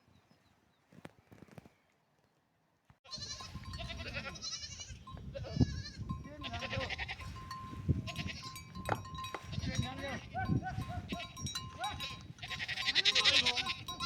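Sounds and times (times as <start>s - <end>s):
sheep bleating: 3.1s - 8.7s, 9.4s - 14.0s.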